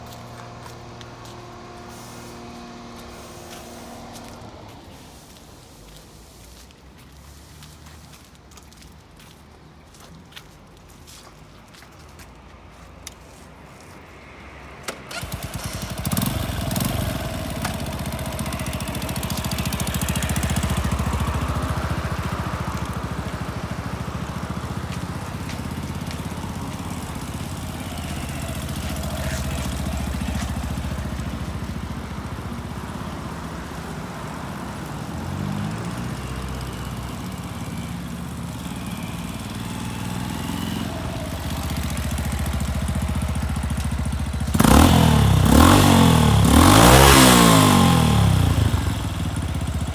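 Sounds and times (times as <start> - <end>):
motorcycle engine starting and idling: 14.8 - 49.9.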